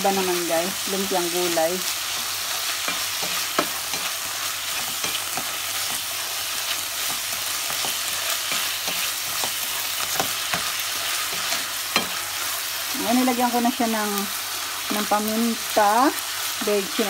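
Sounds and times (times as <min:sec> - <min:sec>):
food sizzling in a pan: 0:00.0 - 0:17.0
spatula scraping a pan: 0:02.0 - 0:12.7.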